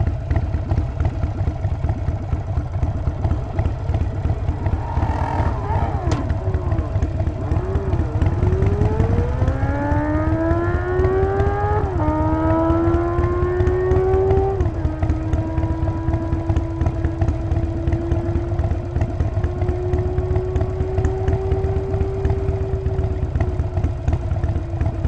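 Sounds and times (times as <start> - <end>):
motorcycle engine running: 0.0 - 25.0
rising engine whine: 2.2 - 18.5.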